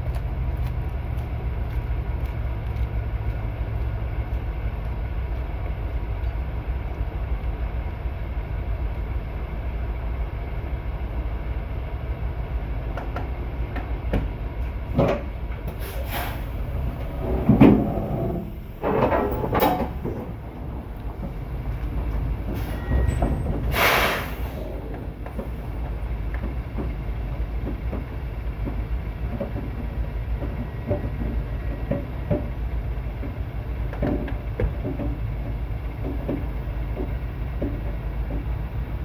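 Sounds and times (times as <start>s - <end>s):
diesel truck engine rumbling: 0.0s - 39.0s
light rattles and knocks: 12.9s - 39.0s
air hiss: 23.7s - 24.7s.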